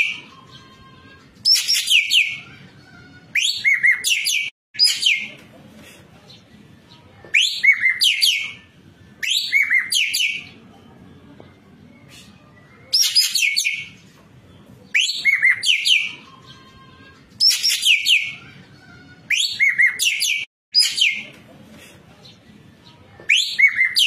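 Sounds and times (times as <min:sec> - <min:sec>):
bird chirps and whistles: 0:09.2 - 0:10.5, 0:14.9 - 0:16.2.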